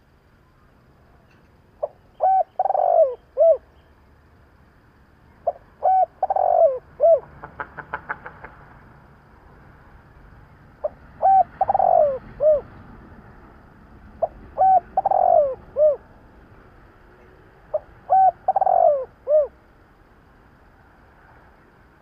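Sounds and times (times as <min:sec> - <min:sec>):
dove cooing: 0:01.8 - 0:03.7, 0:05.4 - 0:07.6, 0:10.8 - 0:12.7, 0:14.1 - 0:16.1, 0:17.7 - 0:19.6.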